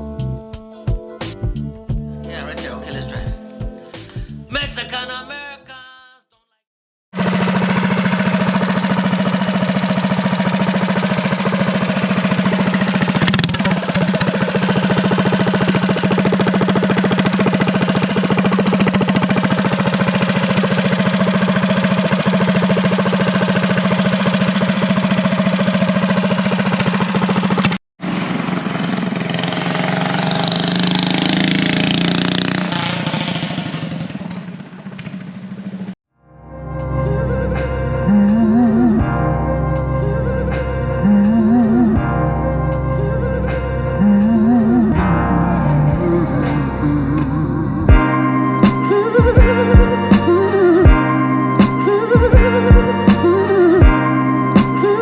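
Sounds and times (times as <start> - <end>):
small engine running: 7.2 - 36.0.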